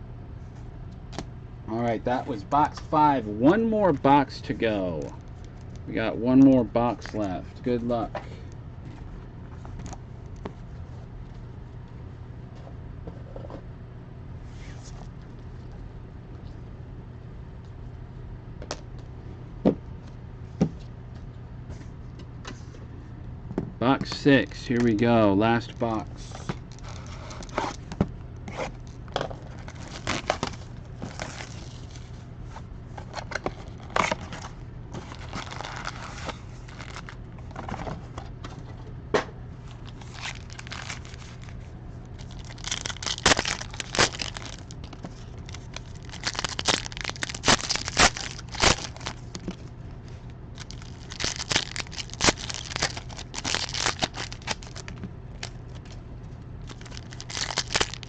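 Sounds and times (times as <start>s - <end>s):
steady low hum: 0.0s - 58.0s
plastic wrapping crinkling: 28.8s - 32.1s, 35.0s - 37.2s, 39.7s - 56.0s, 56.6s - 58.0s.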